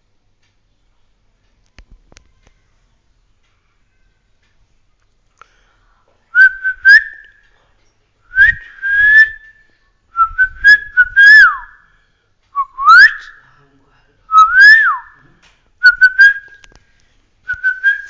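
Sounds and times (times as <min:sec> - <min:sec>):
loud whistling: 0:06.4 - 0:07.4, 0:08.3 - 0:09.6, 0:10.2 - 0:11.8, 0:12.6 - 0:13.4, 0:14.3 - 0:15.2, 0:15.8 - 0:16.6, 0:17.5 - 0:18.0.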